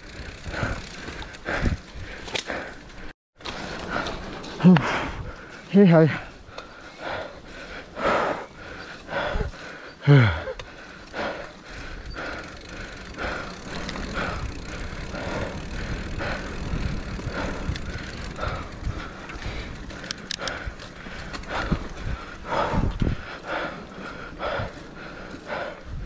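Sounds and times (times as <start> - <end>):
rider breathing hard: 0.0 - 26.0
tyres and wind rumble: 0.0 - 26.0
bike clicks and knocks: 0.1 - 4.8, 12.1 - 22.0.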